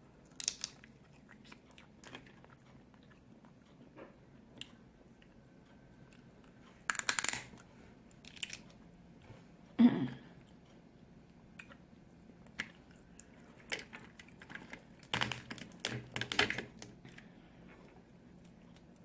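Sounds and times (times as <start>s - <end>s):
crab legs cracking: 0.3s - 2.5s, 6.8s - 7.6s, 8.2s - 8.7s, 12.5s - 17.2s
chewing: 0.5s - 6.8s.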